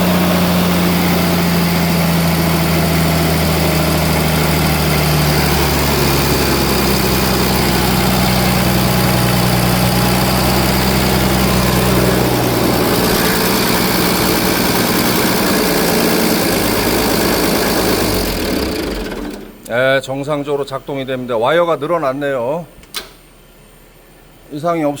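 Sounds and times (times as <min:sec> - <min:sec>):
diesel engine running: 0:00.0 - 0:19.7.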